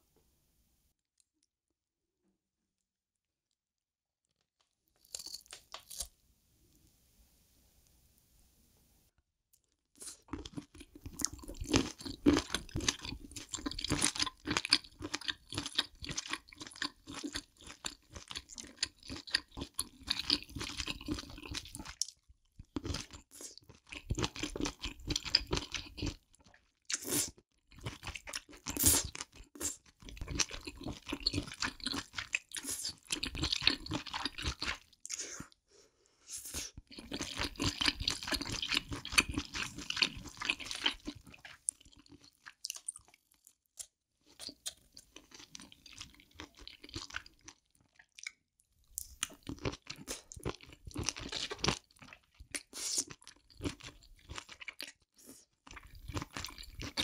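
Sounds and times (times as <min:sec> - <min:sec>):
person chewing and biting: 0:05.0 - 0:06.1, 0:10.0 - 0:35.2, 0:36.8 - 0:48.4, 0:49.0 - 0:57.0.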